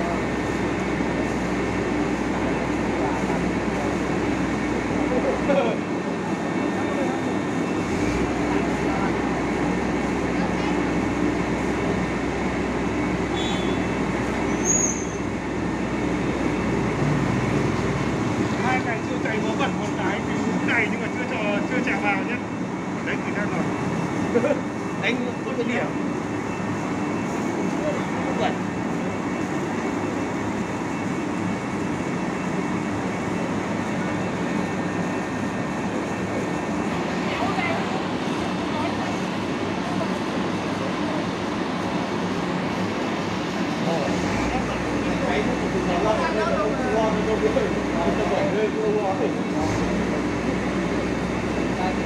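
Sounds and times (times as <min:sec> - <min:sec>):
fire truck running: 0:00.0 - 0:52.0
high squeal: 0:13.3 - 0:15.4.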